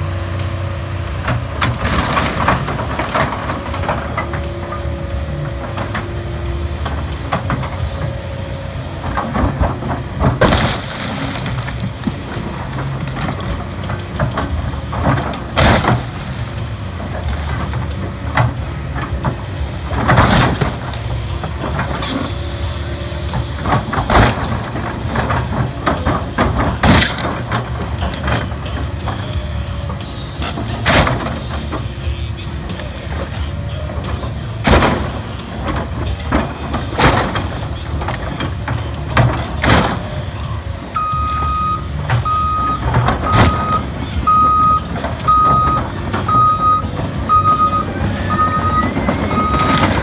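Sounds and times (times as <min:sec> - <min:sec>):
diesel machinery running: 0:00.0 - 0:50.0
car metal and glass crunching: 0:01.3 - 0:04.8, 0:09.0 - 0:50.0
hydraulic hiss: 0:22.0 - 0:24.0.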